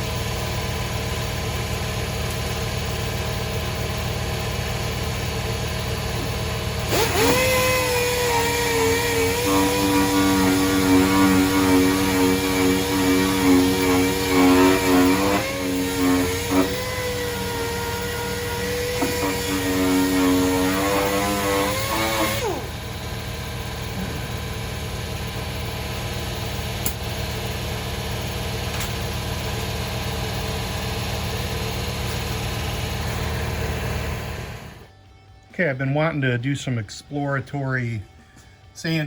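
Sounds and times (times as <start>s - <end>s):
steady low hum: 0.0s - 39.0s
power sander on metal: 6.2s - 34.9s.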